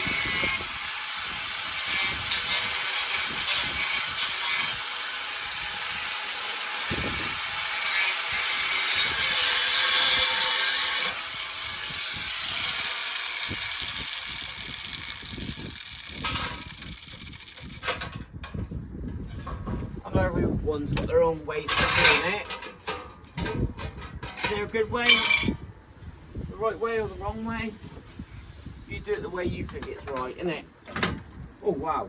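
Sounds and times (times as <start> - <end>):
power tool cutting steel: 0.0 - 18.2.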